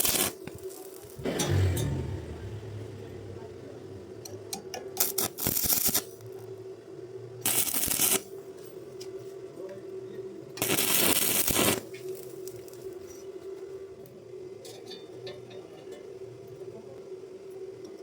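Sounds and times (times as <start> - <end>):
arc welding crackling: 0.0 - 1.9, 3.6 - 6.5, 7.4 - 8.3, 10.6 - 13.0
steady low hum: 1.2 - 4.6.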